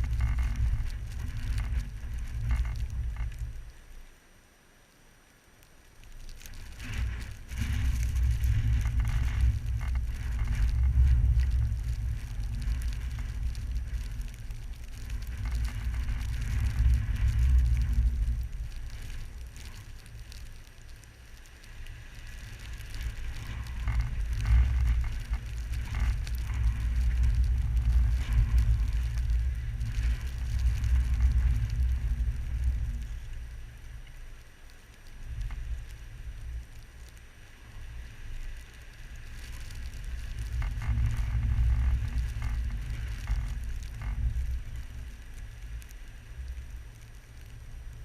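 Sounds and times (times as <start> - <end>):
wind gusting against microphone: 6.6 - 34.0.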